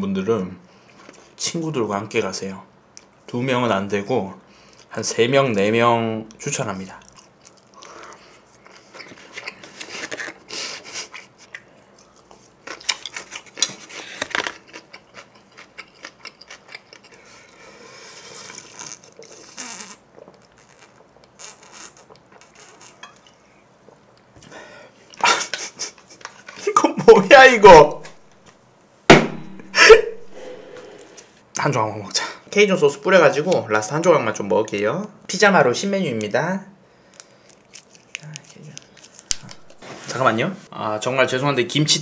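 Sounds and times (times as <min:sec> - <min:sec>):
chewing and wet mouth sounds: 0:06.8 - 0:17.7, 0:37.1 - 0:39.7.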